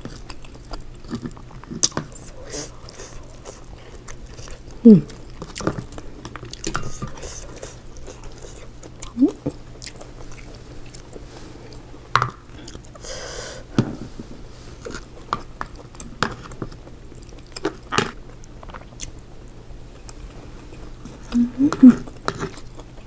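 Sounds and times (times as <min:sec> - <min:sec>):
chewing and biting seafood: 0:00.0 - 0:13.0.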